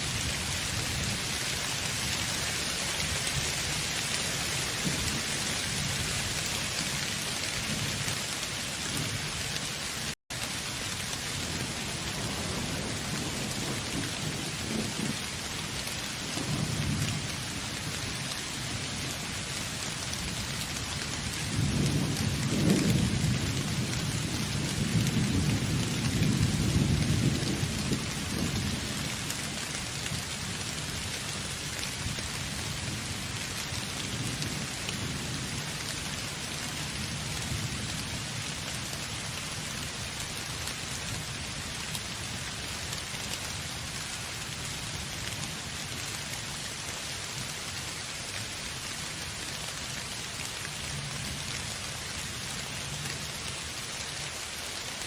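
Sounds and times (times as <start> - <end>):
steady rain: 0.0 - 55.0
thunder rumbling: 11.2 - 30.2.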